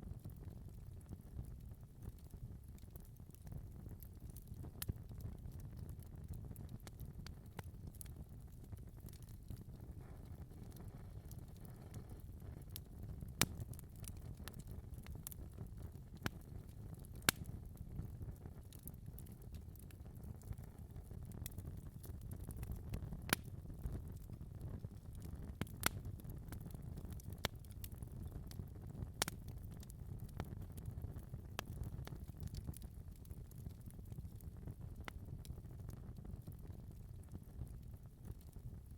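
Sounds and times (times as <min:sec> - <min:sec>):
fire crackling: 0:00.0 - 0:38.9
low rumble of flames: 0:00.0 - 0:38.9
sharp fire pops: 0:25.6 - 0:26.0.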